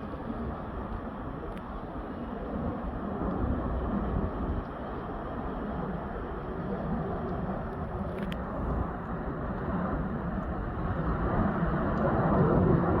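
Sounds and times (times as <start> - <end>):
faint click: 8.1 - 8.5.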